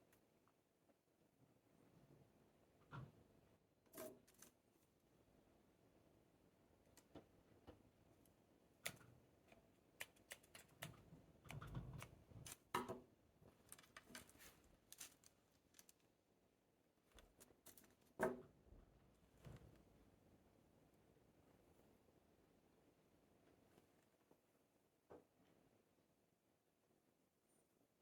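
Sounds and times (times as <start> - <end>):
clicks and rustles of potting soil: 8.8 - 16.2, 17.1 - 18.2.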